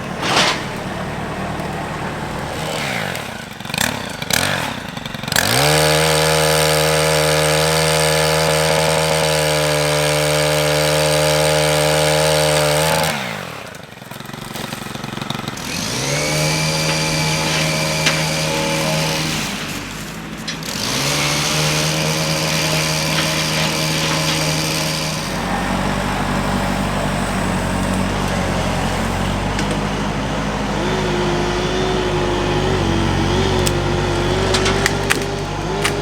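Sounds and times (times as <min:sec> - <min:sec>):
engine running: 0:00.0 - 0:36.0
rumbling engine with wavering whine: 0:25.4 - 0:36.0.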